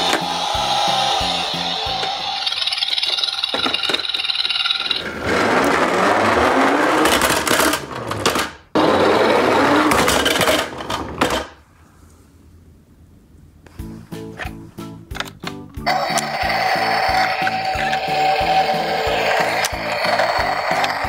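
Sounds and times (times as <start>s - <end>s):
toy truck wheels rattling whir: 0.4s - 7.8s, 15.9s - 21.0s.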